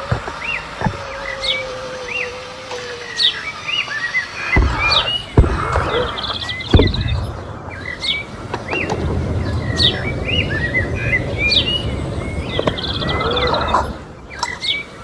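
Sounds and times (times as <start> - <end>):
low rumbling noise: 0.0 - 15.0
small birds chirping: 0.0 - 15.0
sharp knocks: 4.5 - 7.5.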